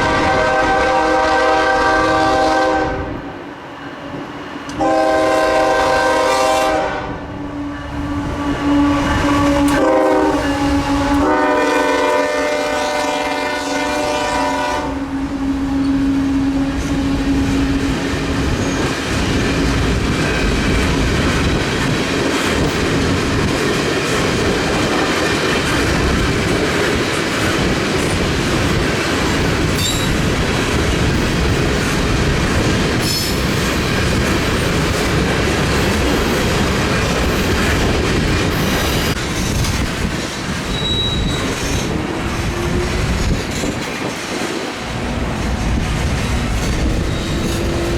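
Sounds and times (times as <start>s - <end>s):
locomotive air horn: 0.0s - 3.2s, 4.8s - 17.6s
train rumbling past: 0.0s - 47.9s
faint wheel squeal: 40.7s - 41.6s.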